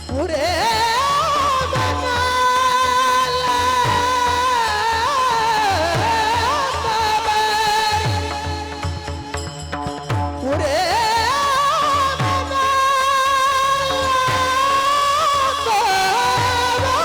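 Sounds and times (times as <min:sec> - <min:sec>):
devotional accompaniment: 0:00.0 - 0:17.0
man singing a long high note: 0:10.5 - 0:17.0.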